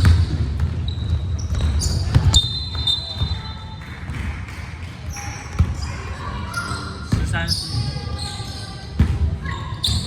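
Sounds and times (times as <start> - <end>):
sneakers squeaking on court: 0.0 - 4.3, 5.1 - 10.0
basketball bouncing on gym floor: 0.0 - 4.6, 5.5 - 6.0, 7.1 - 8.1, 8.9 - 10.0.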